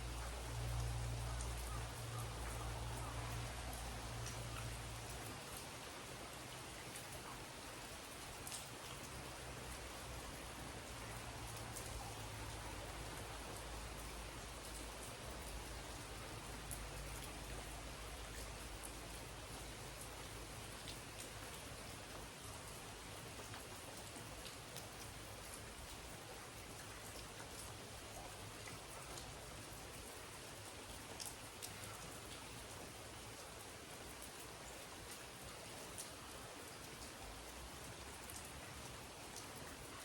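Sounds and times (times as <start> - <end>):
steady rainfall: 0.0 - 40.0.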